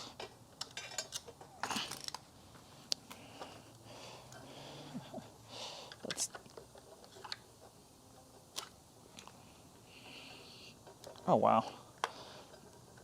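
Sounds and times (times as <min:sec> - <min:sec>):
clicks and rattles of vacuum parts: 0:00.2 - 0:02.3.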